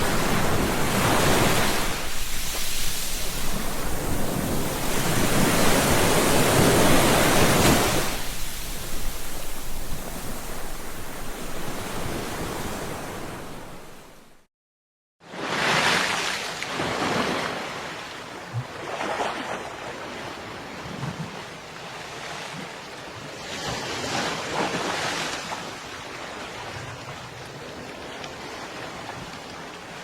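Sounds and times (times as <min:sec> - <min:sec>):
ocean waves breaking: 0:00.0 - 0:14.4.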